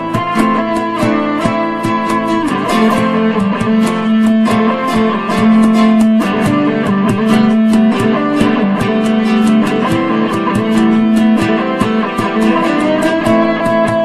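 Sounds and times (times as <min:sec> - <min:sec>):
instrumental rock ballad: 0:00.0 - 0:14.0.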